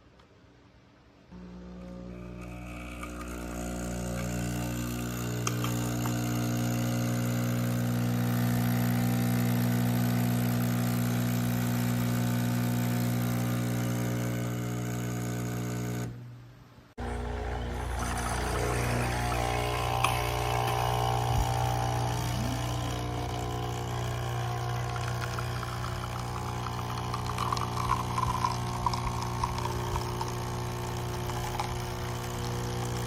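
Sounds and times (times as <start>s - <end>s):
capsule coffee machine pump buzzing: 1.3s - 33.0s.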